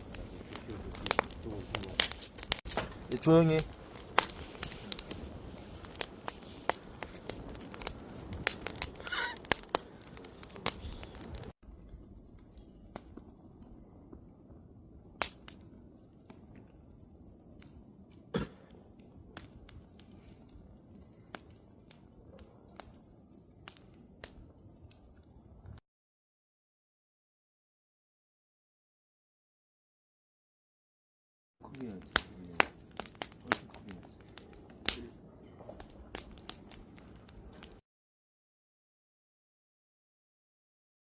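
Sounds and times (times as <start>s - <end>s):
campfire crackling and popping: 0.0s - 25.8s, 31.6s - 37.8s.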